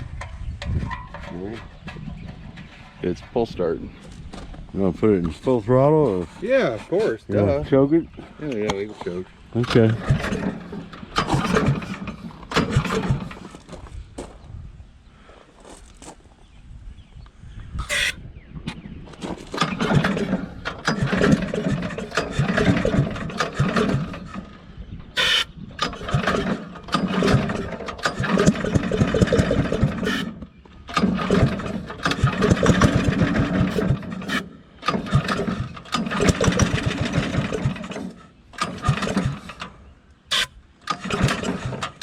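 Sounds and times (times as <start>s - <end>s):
small engine cranking: 9.6s - 13.8s, 17.8s - 18.2s, 19.4s - 42.0s.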